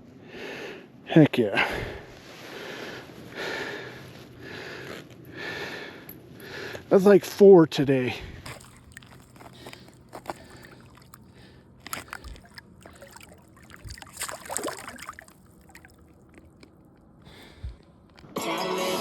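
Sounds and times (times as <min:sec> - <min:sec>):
water sloshing and splashing: 0:08.2 - 0:17.9.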